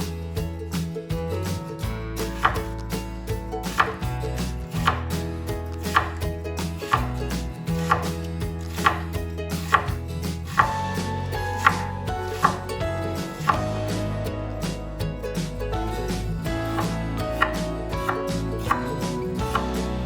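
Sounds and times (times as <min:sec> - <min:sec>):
background music: 0:00.0 - 0:20.0
knife chopping on cutting board: 0:03.7 - 0:04.0, 0:04.8 - 0:05.1, 0:05.9 - 0:06.2, 0:06.9 - 0:10.0, 0:11.6 - 0:12.6.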